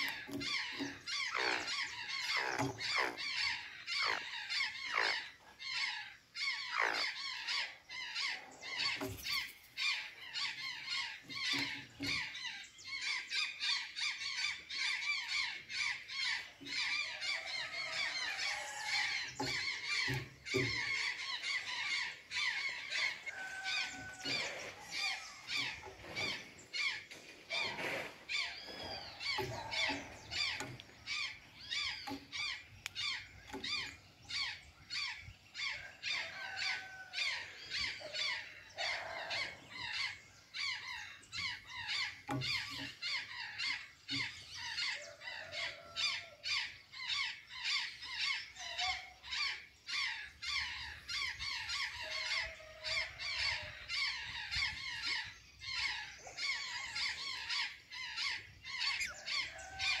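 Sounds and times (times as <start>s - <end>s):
jays squawking: 0.0s - 46.4s.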